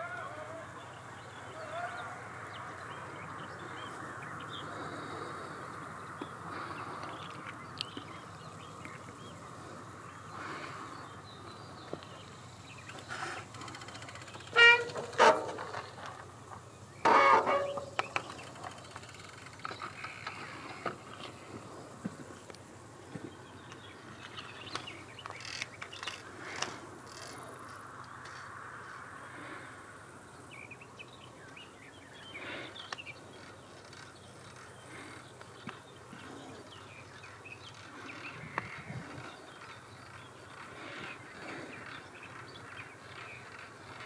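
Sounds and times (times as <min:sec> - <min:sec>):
bird calls and chirps: 0:06.2 - 0:21.6, 0:23.1 - 0:26.3, 0:30.4 - 0:44.0.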